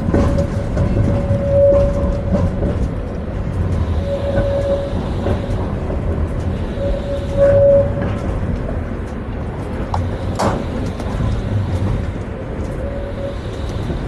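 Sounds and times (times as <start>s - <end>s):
tram rumbling on track: 0.0s - 14.0s
wheel and rail clicks: 0.0s - 14.0s
high steady tone: 3.8s - 8.3s.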